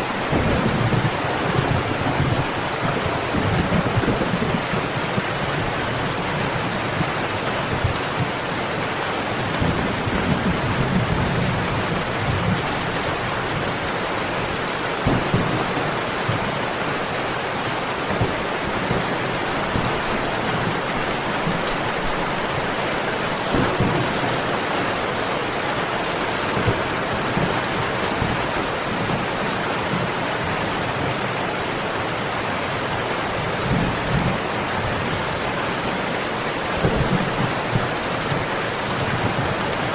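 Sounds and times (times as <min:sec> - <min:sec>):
steady rain: 0:00.0 - 0:39.9
low thunder rumbles: 0:00.1 - 0:08.5, 0:09.3 - 0:16.6, 0:18.1 - 0:29.4.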